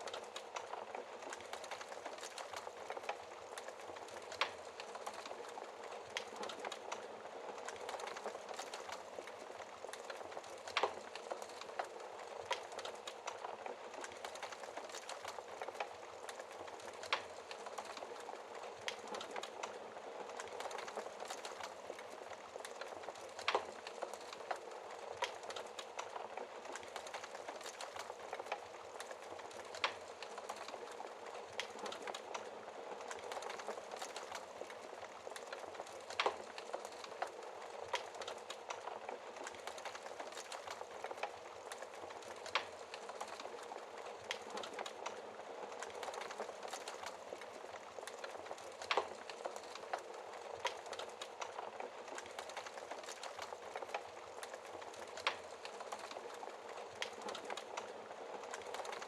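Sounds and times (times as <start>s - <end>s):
fire hissing and crackling: 0.0s - 59.0s.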